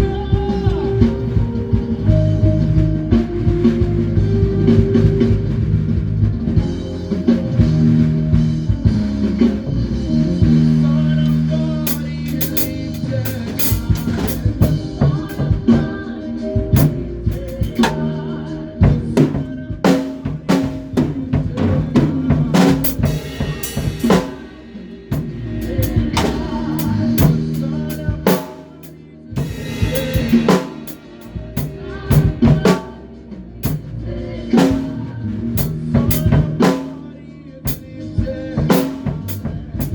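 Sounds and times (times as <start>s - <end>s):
drum kit playing: 0.0s - 39.9s
sustained low bass notes: 0.0s - 39.9s.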